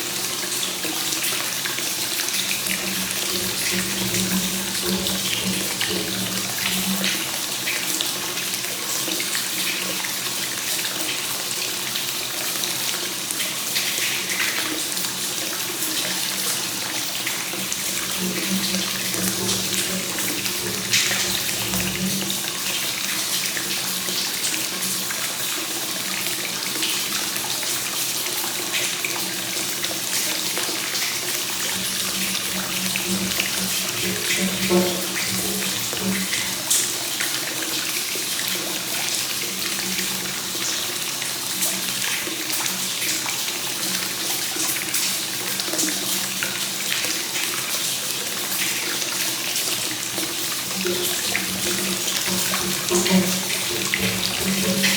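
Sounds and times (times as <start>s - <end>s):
water pouring into a bath: 0.0s - 54.9s
louder water splashes: 50.7s - 54.9s.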